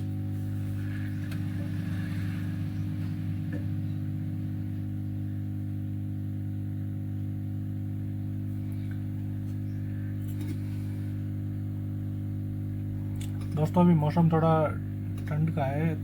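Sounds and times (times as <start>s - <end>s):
hot-air station humming: 0.0s - 16.0s.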